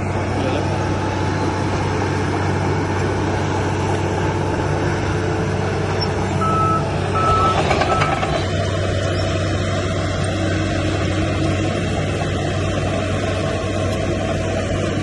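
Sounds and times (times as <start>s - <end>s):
diesel engine running: 0.0s - 15.0s
reversing alarm beeps: 6.4s - 8.2s.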